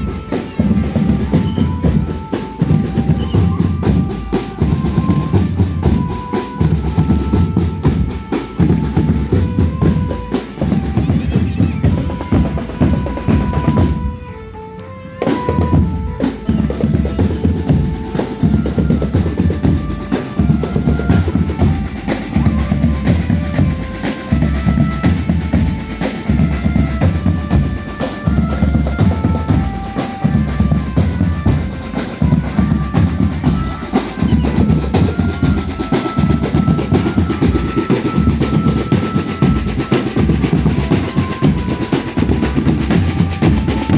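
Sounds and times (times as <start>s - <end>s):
bass drums: 0.0s - 14.2s
snare drum rolls: 15.2s - 43.9s.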